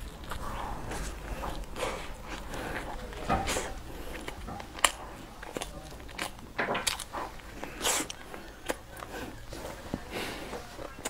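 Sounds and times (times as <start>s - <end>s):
wet mouth clicks: 0.0s - 8.8s
chewing cookie: 0.0s - 11.0s
soft crunches: 0.0s - 11.0s.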